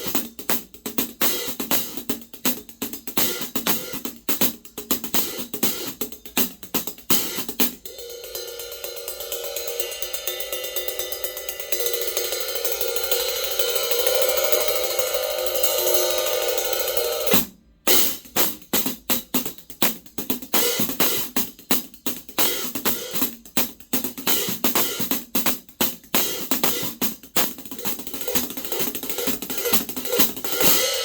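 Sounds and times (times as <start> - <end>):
hi-hat sharp strokes: 7.4 - 17.4
hi-hat shimmering wash: 7.9 - 17.3.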